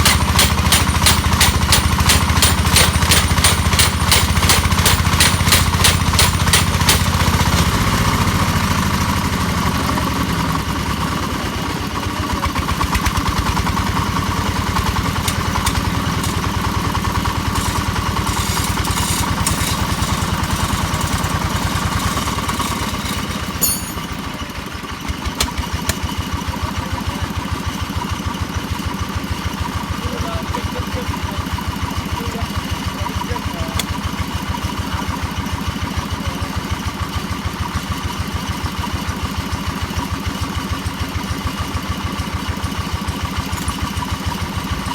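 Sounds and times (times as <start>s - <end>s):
rapid sharp knocks: 0.0s - 7.3s
hammer drill droning: 0.0s - 7.7s, 14.0s - 24.2s.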